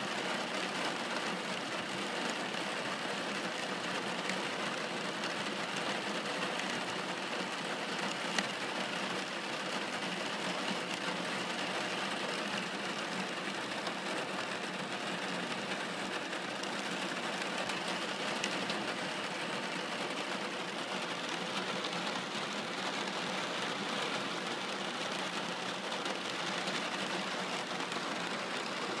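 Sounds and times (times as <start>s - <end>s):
rain pattering on glass sunroof: 0.1s - 29.0s.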